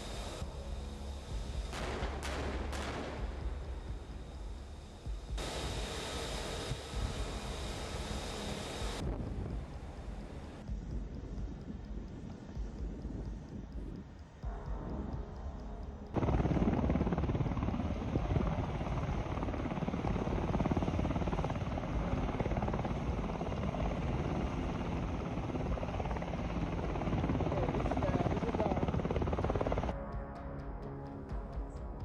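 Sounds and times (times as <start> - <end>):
helicopter rotor and engine: 0.0 - 29.9.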